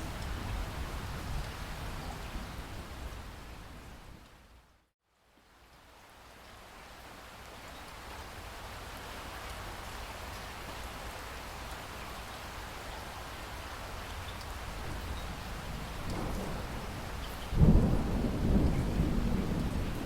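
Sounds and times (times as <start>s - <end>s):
steady rain: 0.0s - 20.0s
distant thunder rumble: 14.8s - 20.0s.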